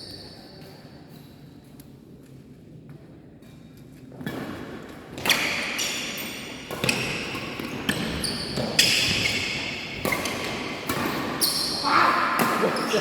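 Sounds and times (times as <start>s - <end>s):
racket hitting shuttlecock: 12.3s - 12.8s.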